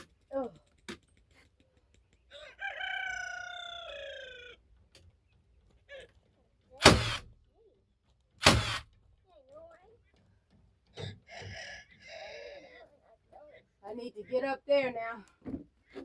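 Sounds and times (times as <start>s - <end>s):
rooster crowing: 2.3s - 4.7s
nail gun shot into wood: 6.8s - 7.4s, 8.4s - 9.0s.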